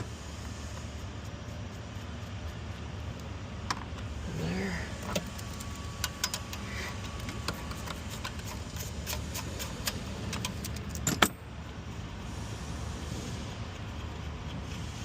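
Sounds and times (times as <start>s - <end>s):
steady low hum: 0.0s - 15.0s
metal tools clinking: 10.3s - 11.5s.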